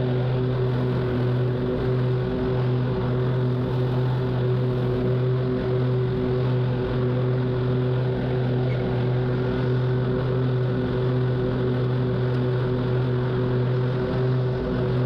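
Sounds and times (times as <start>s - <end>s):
lawn mower engine humming: 0.0s - 15.0s.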